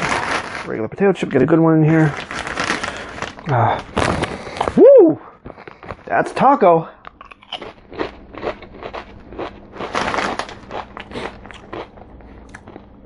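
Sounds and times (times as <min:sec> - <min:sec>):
potato chip crunching: 0:00.0 - 0:01.4, 0:02.0 - 0:04.8, 0:07.0 - 0:13.0
chip bag rustling: 0:00.0 - 0:04.8, 0:08.4 - 0:11.9.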